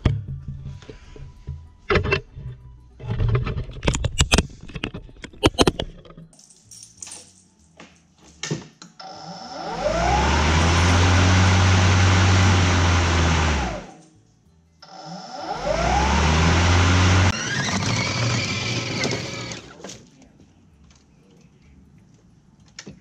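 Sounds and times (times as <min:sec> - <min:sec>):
clicks and knocks: 0:03.0 - 0:06.4
mower motor whine: 0:09.0 - 0:14.0, 0:14.8 - 0:19.8.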